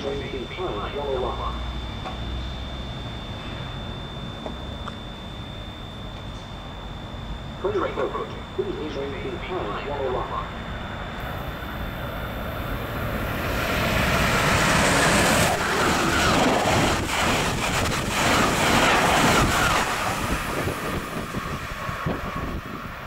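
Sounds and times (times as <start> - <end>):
train passing at high speed: 9.6 - 23.0.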